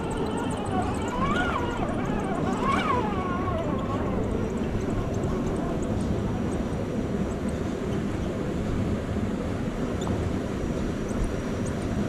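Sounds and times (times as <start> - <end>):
toy car motor whine: 0.0 - 6.0.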